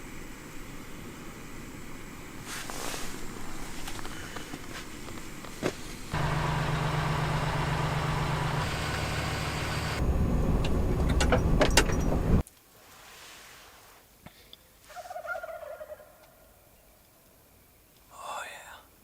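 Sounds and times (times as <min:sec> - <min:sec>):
vehicle engine running: 0:03.3 - 0:12.4.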